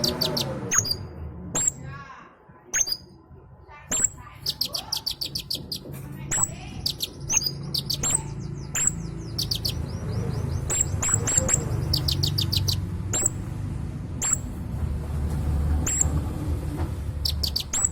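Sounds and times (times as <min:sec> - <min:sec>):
songbird chips and trills: 0:00.0 - 0:01.0, 0:03.9 - 0:13.4, 0:14.2 - 0:14.5, 0:15.8 - 0:16.1, 0:17.2 - 0:17.9.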